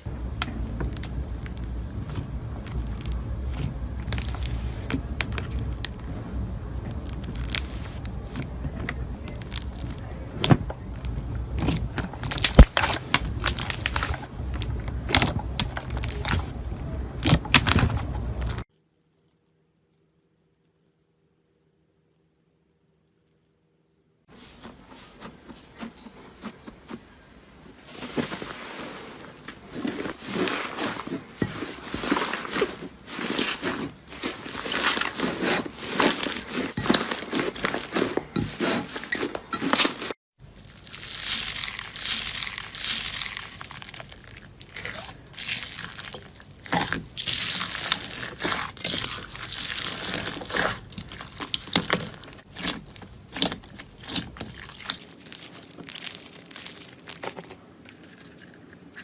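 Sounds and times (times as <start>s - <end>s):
slime crackling when squeezed: 40.6s - 57.2s.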